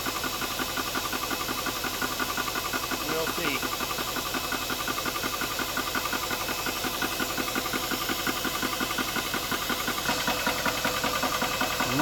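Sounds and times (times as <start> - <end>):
air compressor pump pulsing: 0.0 - 12.0.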